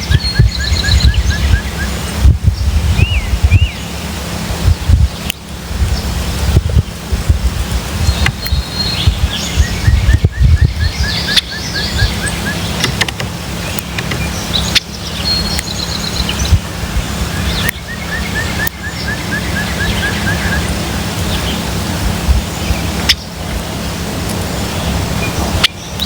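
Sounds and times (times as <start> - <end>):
low rumble: 0.0 - 18.6
songbirds chirping: 0.0 - 26.0.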